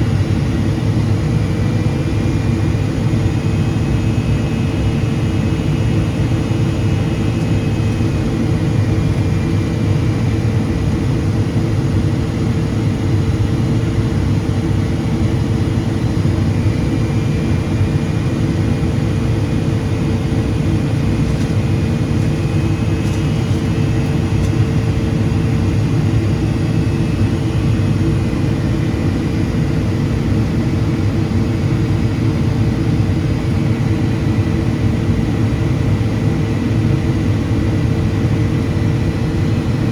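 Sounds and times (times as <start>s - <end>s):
jet engines humming: 0.0s - 31.0s.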